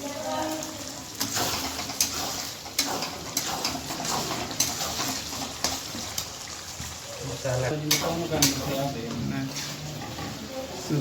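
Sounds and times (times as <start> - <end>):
metal spoon clinking against pan: 7.8 - 10.4.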